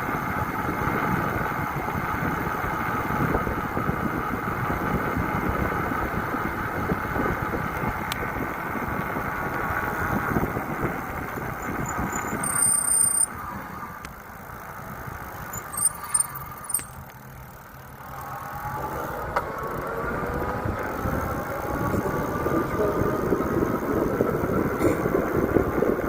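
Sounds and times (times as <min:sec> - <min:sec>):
bike riding noise: 0:00.0 - 0:26.0
road noise: 0:00.0 - 0:26.0
wind rumbling on microphone: 0:00.1 - 0:12.6, 0:20.3 - 0:26.0.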